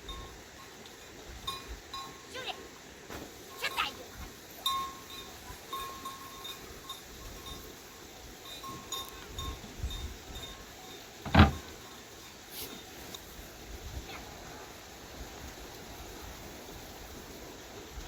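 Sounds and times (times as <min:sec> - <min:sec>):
livestock bells clinking: 0:00.0 - 0:02.8, 0:03.4 - 0:12.5.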